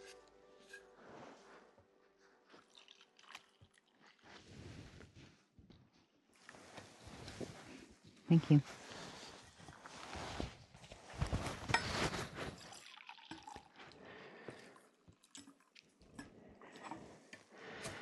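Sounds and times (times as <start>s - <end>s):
coffee pouring into cup: 2.5s - 4.4s, 12.5s - 17.0s.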